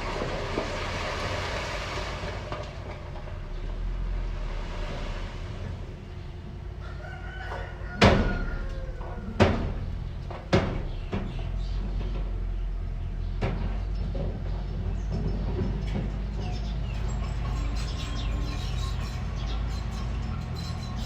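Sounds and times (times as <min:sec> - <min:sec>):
rooster crowing: 0:06.8 - 0:09.7.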